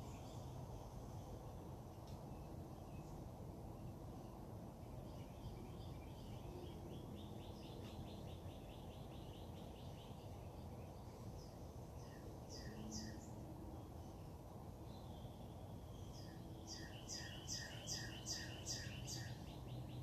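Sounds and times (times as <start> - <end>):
low background hum: 0.0 - 20.0
bird chirping: 2.3 - 20.0.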